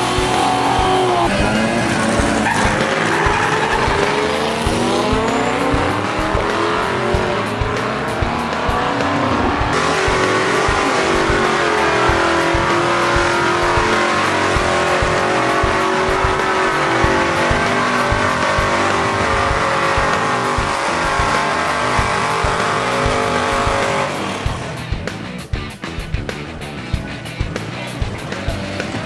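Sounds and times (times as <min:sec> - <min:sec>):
car engines revving: 0:00.0 - 0:29.0.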